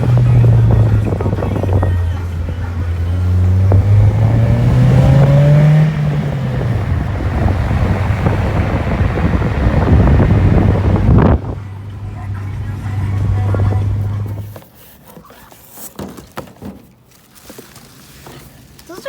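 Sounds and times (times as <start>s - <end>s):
car engine accelerating: 0.0s - 14.5s.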